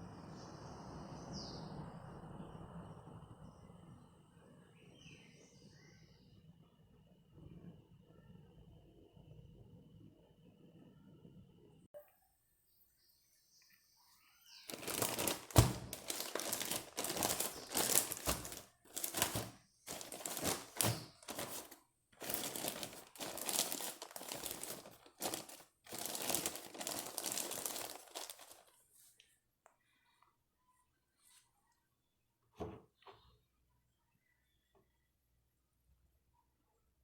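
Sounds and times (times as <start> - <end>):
close-up crinkling handling noise: 14.7 - 29.4.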